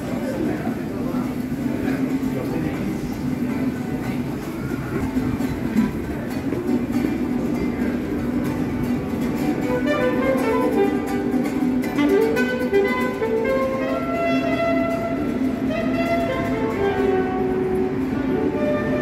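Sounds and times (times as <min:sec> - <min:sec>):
metro train rumbling: 0:00.0 - 0:19.0
instrumental music with held notes: 0:08.8 - 0:19.0.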